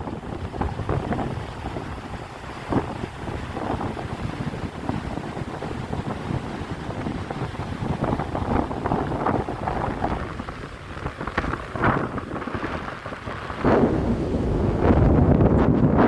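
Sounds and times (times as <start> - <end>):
waves washing onto shore: 0.0 - 16.0
wind buffeting microphone: 0.0 - 16.0.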